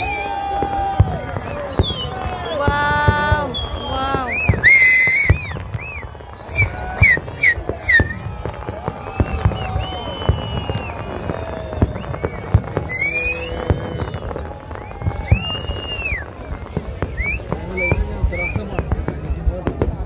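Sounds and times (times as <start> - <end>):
crowd calling out: 0.0 - 20.0
fireworks bangs and crackles: 0.0 - 20.0.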